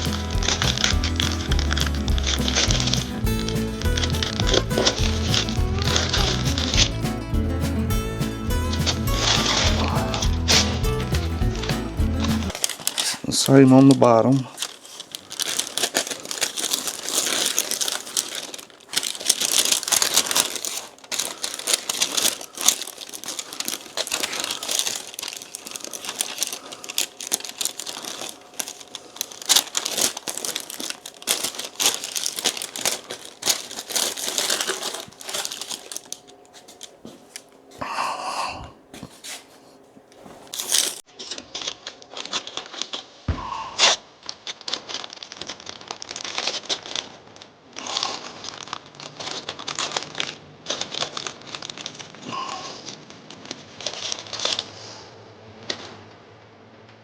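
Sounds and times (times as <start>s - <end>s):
masking tape crinkling and tearing: 0.0s - 37.8s, 39.0s - 43.2s, 43.8s - 54.8s.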